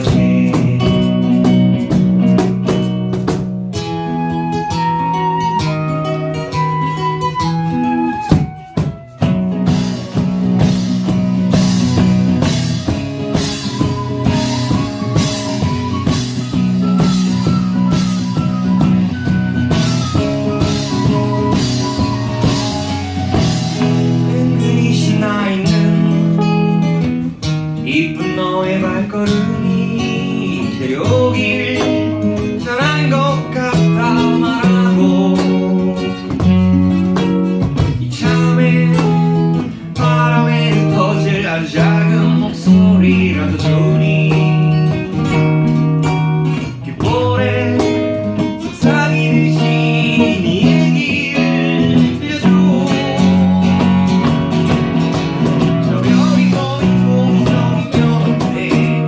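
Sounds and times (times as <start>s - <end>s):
person singing: 0.0s - 1.6s, 17.4s - 26.5s, 27.8s - 36.5s, 37.8s - 45.4s, 46.6s - 59.0s
acoustic guitar strummed: 0.0s - 59.0s.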